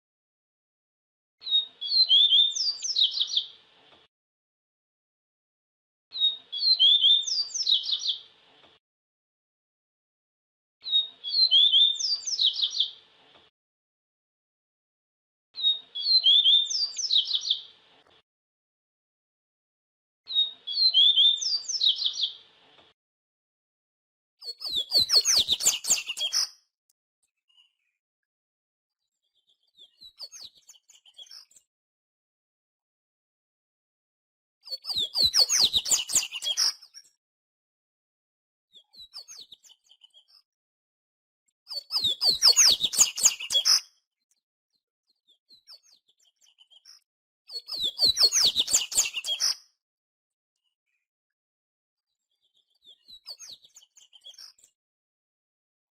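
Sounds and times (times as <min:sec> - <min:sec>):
bird singing whistled notes: 0:01.4 - 0:03.5, 0:06.2 - 0:08.2, 0:10.8 - 0:12.9, 0:15.6 - 0:17.6, 0:20.3 - 0:22.4, 0:24.4 - 0:26.5, 0:34.7 - 0:37.0, 0:41.7 - 0:43.8, 0:47.5 - 0:49.6
faint bird chirps: 0:01.4 - 0:03.6, 0:06.1 - 0:08.2, 0:20.3 - 0:22.4, 0:24.4 - 0:26.6, 0:29.1 - 0:31.7, 0:34.6 - 0:37.2, 0:38.7 - 0:40.5, 0:41.7 - 0:49.7, 0:52.1 - 0:54.8
bird chirping rapidly: 0:24.4 - 0:26.5, 0:34.7 - 0:36.7, 0:41.7 - 0:43.8, 0:47.5 - 0:49.6.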